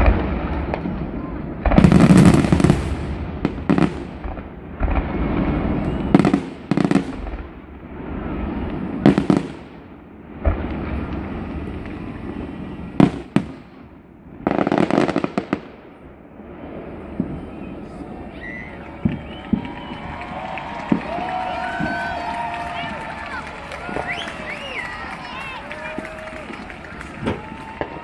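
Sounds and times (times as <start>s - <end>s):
firework booms: 0.0s - 23.0s, 23.8s - 28.0s
firework pops: 18.9s - 19.9s, 25.8s - 28.0s.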